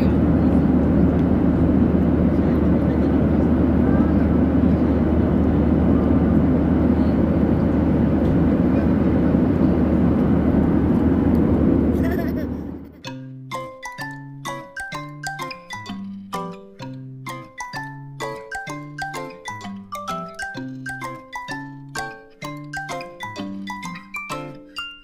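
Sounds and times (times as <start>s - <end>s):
airliner cabin engine drone: 0.0s - 13.0s.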